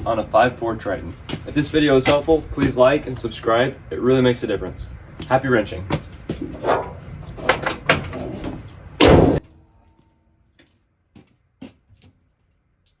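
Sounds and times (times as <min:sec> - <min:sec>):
loud slam: 0:09.0 - 0:09.5.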